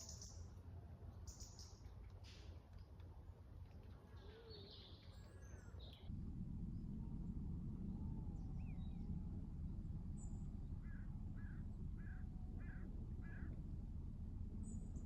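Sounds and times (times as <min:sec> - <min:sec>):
low rumbling background: 0:00.0 - 0:15.0
birds calling: 0:10.8 - 0:13.6.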